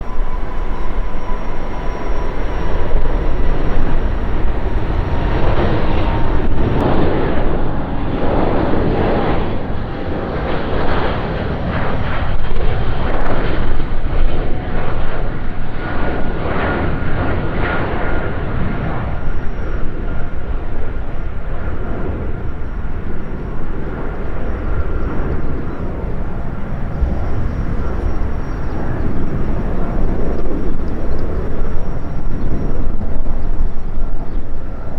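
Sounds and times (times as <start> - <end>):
faint thin whine: 0.0 - 6.8, 19.2 - 34.9
jet engines rumbling at takeoff: 0.0 - 34.9.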